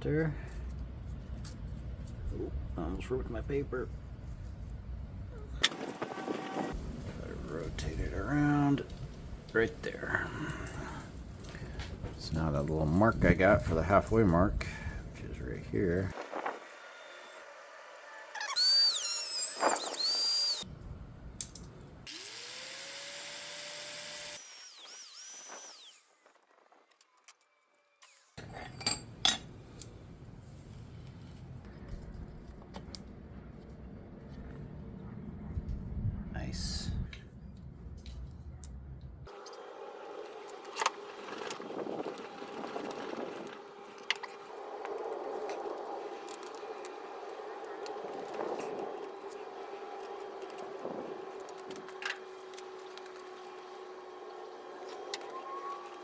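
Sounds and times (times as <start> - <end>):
power tool whining: 5.6 - 6.8, 16.5 - 20.6, 22.1 - 26.3, 39.4 - 56.0
small motor humming: 16.4 - 20.6, 22.1 - 26.3, 39.3 - 56.0.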